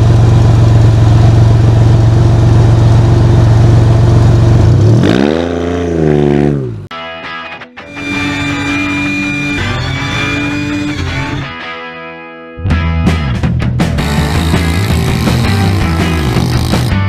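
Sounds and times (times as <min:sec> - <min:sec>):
engine idling and revving: 0:00.0 - 0:06.9, 0:08.0 - 0:11.4, 0:13.8 - 0:17.0.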